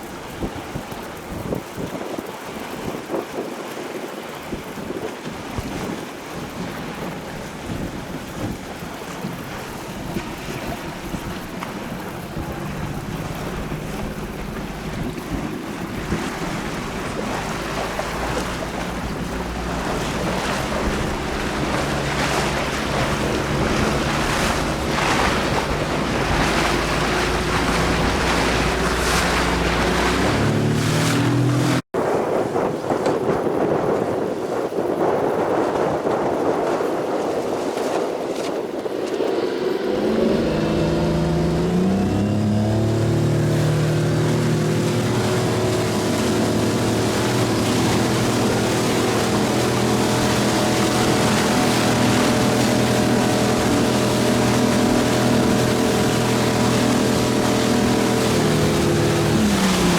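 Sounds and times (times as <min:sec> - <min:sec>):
motorboat engine hum: 0:00.0 - 0:59.9
water washing: 0:00.0 - 0:59.9
wind buffeting microphone: 0:00.0 - 0:59.9.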